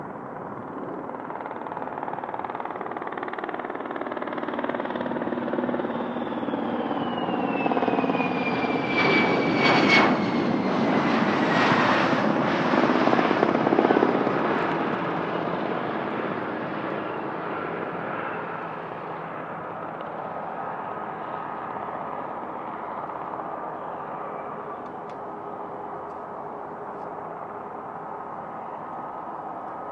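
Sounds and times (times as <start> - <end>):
high jet whine falling in pitch: 5.8 - 15.0
jet engines rushing: 5.8 - 29.9.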